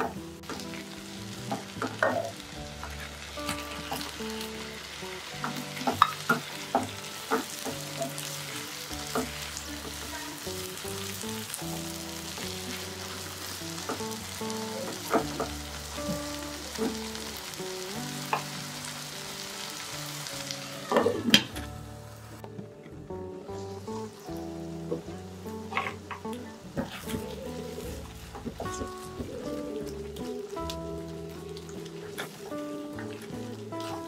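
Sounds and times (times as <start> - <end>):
vegetables sizzling in hot oil: 0.0 - 22.4, 23.5 - 34.0.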